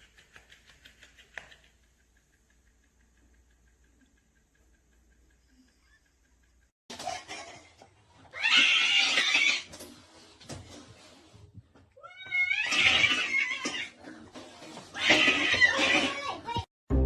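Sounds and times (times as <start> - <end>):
cat crying out harshly: 8.3 - 9.7, 12.0 - 14.0, 14.9 - 16.2.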